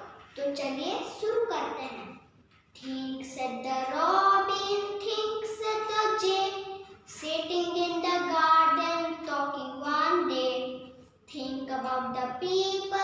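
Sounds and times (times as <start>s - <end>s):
young child singing: 0.0s - 2.1s, 2.8s - 13.0s.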